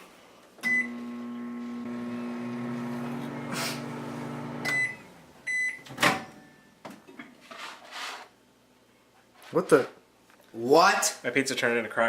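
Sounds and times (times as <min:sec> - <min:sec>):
microwave beeps: 0:00.6 - 0:02.8, 0:04.2 - 0:06.7
microwave oven humming: 0:00.6 - 0:06.4.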